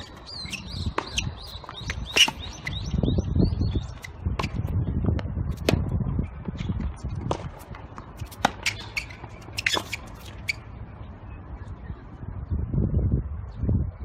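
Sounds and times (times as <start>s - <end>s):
tennis ball strikes and bounces: 0.0s - 2.8s, 4.0s - 5.9s, 6.8s - 10.6s
shoe squeaks: 0.0s - 3.0s, 3.6s - 4.7s, 8.2s - 10.7s.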